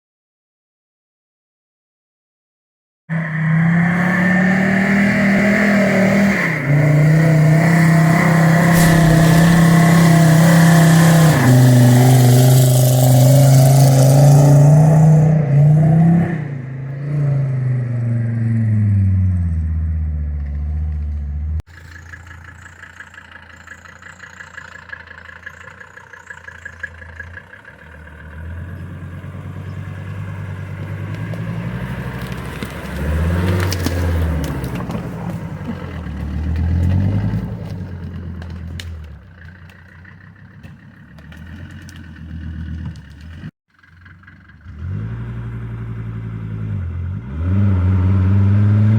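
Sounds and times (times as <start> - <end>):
engine running at low revs: 3.2 - 48.9
car engine running under load: 6.5 - 15.6, 19.2 - 47.2.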